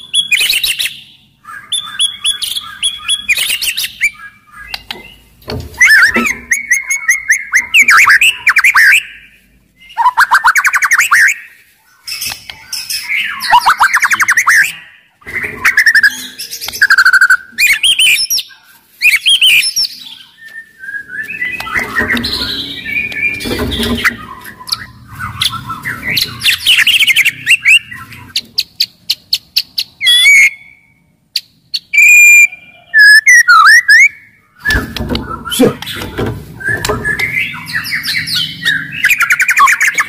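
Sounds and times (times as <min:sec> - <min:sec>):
bird singing whistled phrases: 0:00.0 - 0:04.9, 0:12.2 - 0:28.1, 0:30.0 - 0:31.1, 0:31.8 - 0:40.0.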